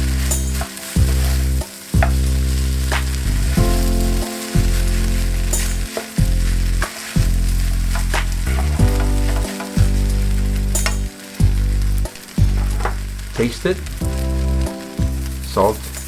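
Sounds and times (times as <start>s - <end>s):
low background music: 0.0s - 16.0s
rice sizzling in a frying pan: 0.0s - 16.0s.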